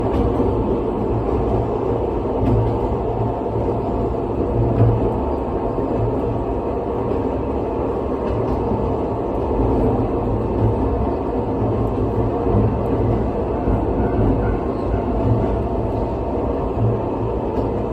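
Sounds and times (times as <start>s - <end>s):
train wheels rumbling on rails: 0.0s - 17.9s.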